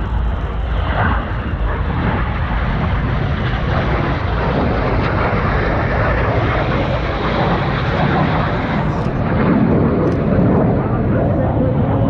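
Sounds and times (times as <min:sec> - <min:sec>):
jets roaring overhead: 0:00.0 - 0:12.0.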